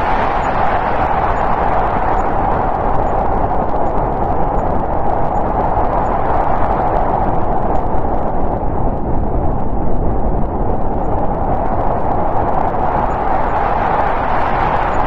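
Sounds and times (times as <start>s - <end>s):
snowstorm wind blowing: 0.0s - 15.0s.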